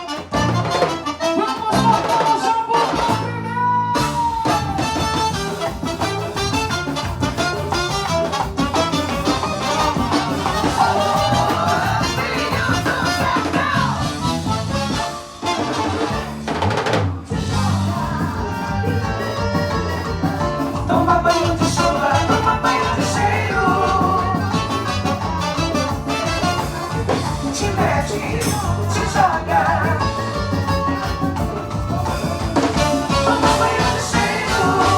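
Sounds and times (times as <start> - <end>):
live band with drum kit: 0.0 - 34.9
person singing: 9.3 - 15.0, 17.2 - 34.9.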